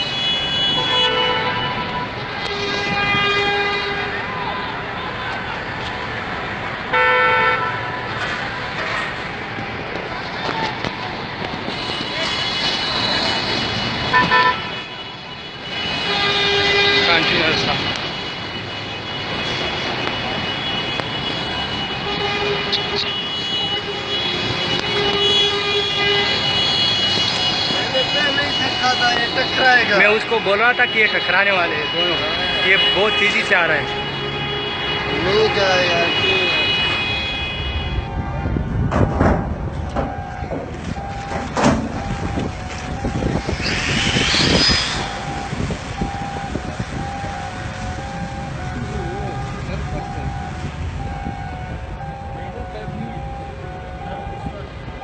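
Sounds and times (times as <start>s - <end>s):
horn steady tone: 0.0s - 5.4s, 11.7s - 38.6s, 40.1s - 55.0s
harbour machinery rumble: 37.7s - 55.0s
beeping tone: 41.0s - 55.0s
loud high screech: 43.4s - 45.5s.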